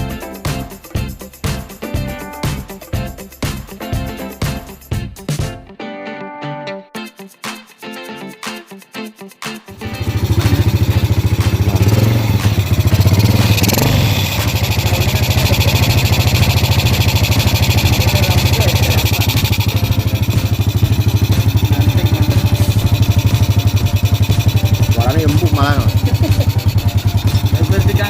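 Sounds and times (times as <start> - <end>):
motorcycle engine puttering: 9.8 - 28.0.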